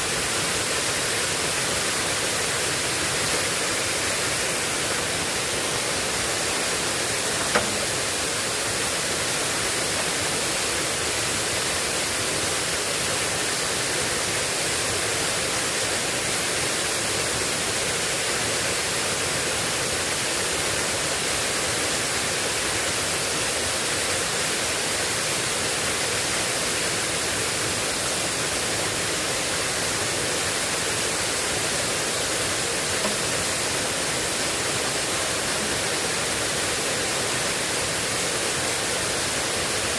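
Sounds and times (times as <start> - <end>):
heavy rain falling: 0.0 - 13.9
sharp click: 7.3 - 8.0.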